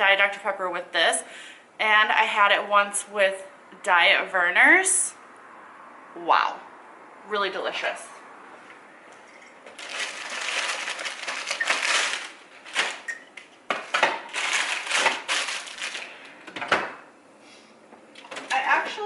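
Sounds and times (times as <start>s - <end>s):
packaging rustling and crinkling: 9.7s - 13.1s, 14.1s - 16.3s.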